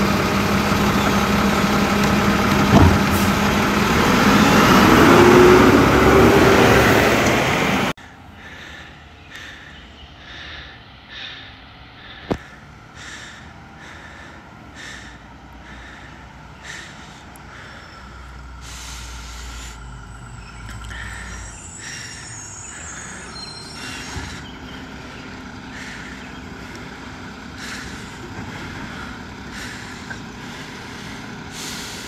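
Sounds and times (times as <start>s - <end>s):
engine knock: 0.0s - 4.2s, 23.8s - 32.0s
garbage truck engine running: 0.0s - 8.9s, 12.0s - 32.0s.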